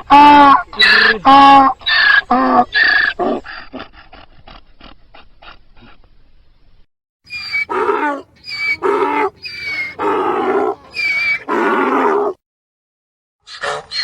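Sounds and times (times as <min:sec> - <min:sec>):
donkey braying: 0:07.3 - 0:12.4.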